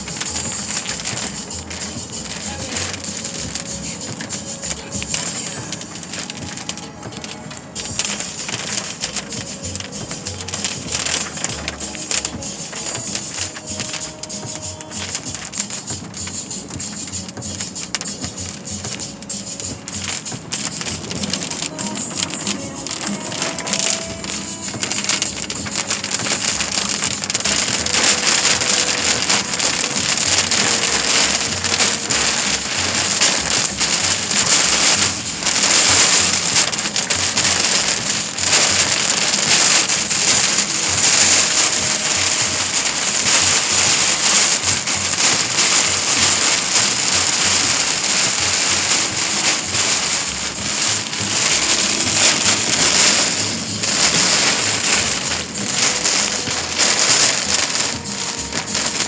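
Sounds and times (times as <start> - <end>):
heavy rain on hard surface: 0.0 - 59.0.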